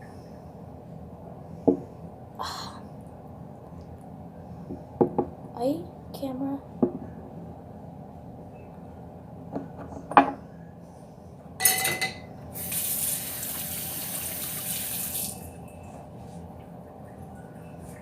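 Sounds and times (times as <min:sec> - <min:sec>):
water running from tap: 0:12.6 - 0:15.5.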